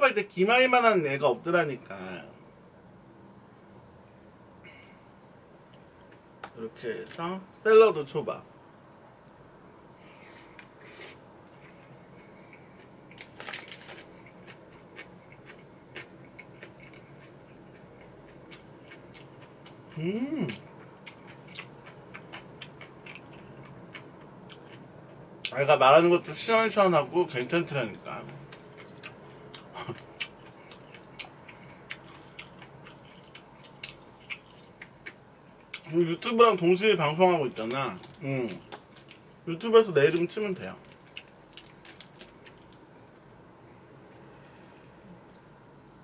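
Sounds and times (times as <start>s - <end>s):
low steady hum: 0.0s - 46.0s
chewing with wet mouth clicks: 11.6s - 25.5s, 28.2s - 35.9s.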